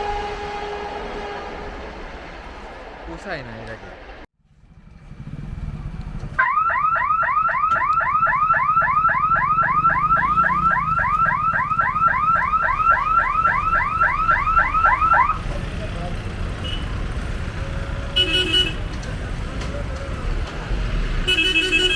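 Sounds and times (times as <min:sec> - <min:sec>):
electronic whooping siren: 0:06.4 - 0:15.4.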